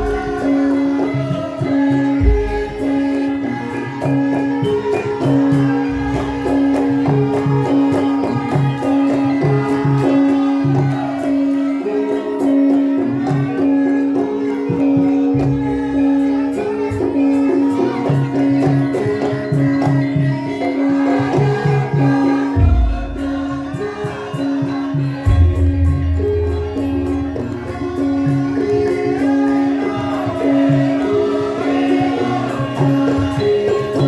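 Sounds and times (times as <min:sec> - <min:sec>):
gamelan music: 0:00.0 - 0:34.0.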